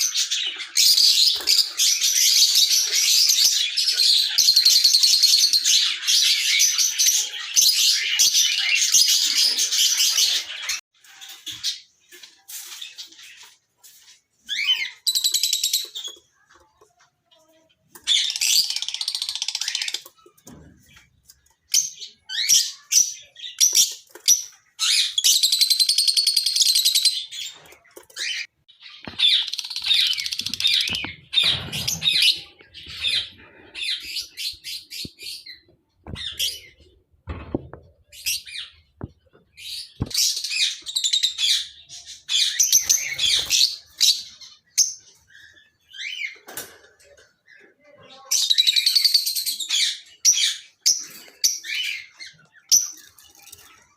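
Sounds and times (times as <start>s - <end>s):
lovebirds chattering: 0.0s - 53.9s.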